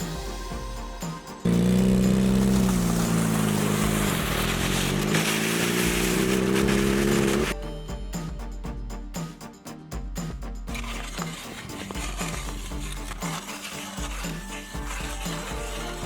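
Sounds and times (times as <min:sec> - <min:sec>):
background music: 0:00.0 - 0:16.0
motorcycle engine revving high: 0:01.5 - 0:07.6.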